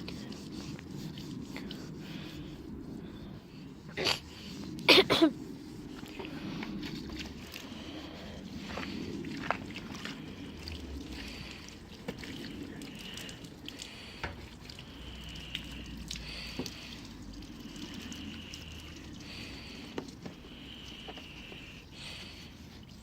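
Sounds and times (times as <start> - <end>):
water trickling and dripping: 5.7 - 23.0
small clicks and splashes: 8.6 - 21.7.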